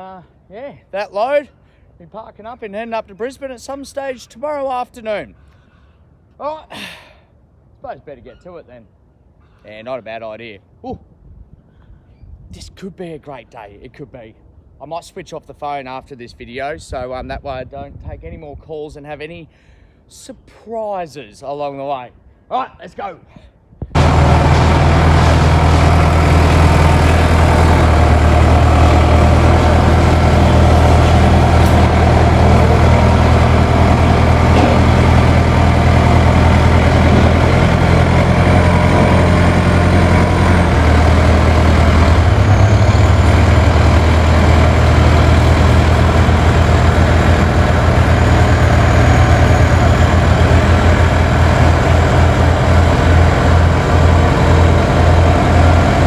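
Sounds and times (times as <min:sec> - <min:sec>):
truck diesel engine running: 0:24.0 - 0:56.0.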